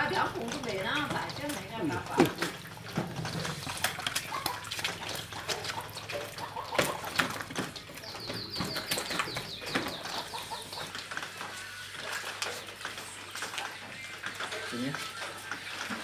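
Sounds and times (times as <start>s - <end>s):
water splashing: 0.0s - 16.0s
small bird chirping: 8.0s - 10.9s.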